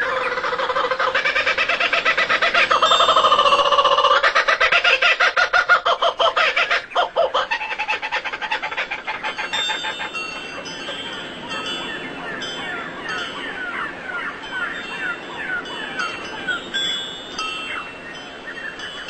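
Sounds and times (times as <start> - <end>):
harsh bird calls: 0.0 - 19.0
high bird chirping: 9.1 - 19.0.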